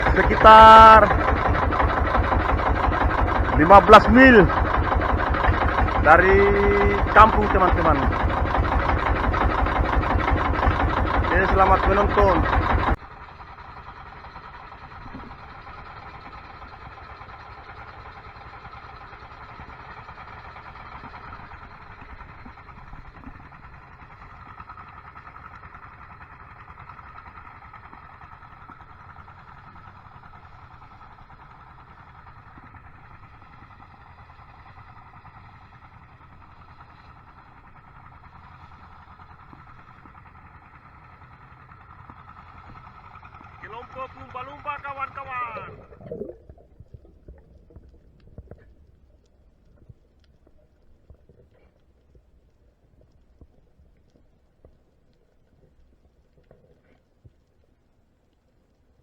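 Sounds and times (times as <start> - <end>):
boat engine droning: 0.0 - 55.4.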